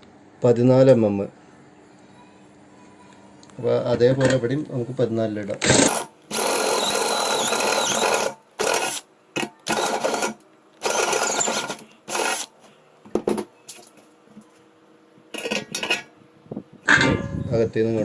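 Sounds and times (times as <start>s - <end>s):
electric drill boring metal: 5.6s - 9.0s, 9.7s - 12.5s.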